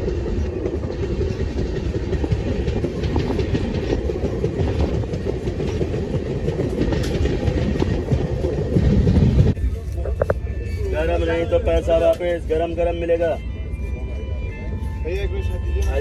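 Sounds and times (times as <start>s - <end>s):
wheels clattering over rail joints: 0.0s - 9.6s
train rumbling: 0.0s - 16.0s.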